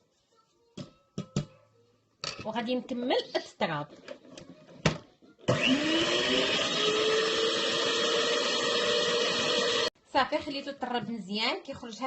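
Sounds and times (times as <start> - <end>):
electric hand mixer whirring: 5.5 - 10.0.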